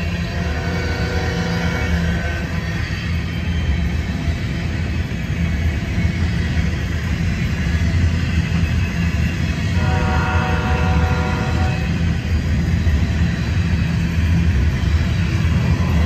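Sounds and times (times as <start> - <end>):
train wheels rumbling on rails: 0.0 - 16.0
train horn chord: 0.3 - 2.4, 9.8 - 12.0.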